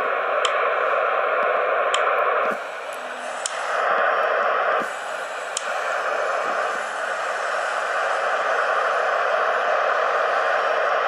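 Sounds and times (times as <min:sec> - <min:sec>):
static hiss: 0:00.0 - 0:11.0
faint clicks: 0:00.4 - 0:00.6.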